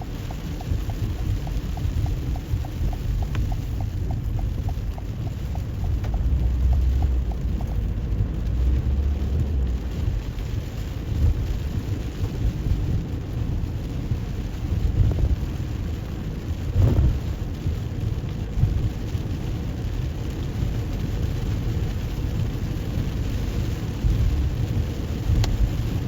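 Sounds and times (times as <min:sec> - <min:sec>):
quick regular ticking: 0:00.0 - 0:07.9
rain on a moving car: 0:00.0 - 0:26.0
steady low rumble: 0:00.0 - 0:26.0.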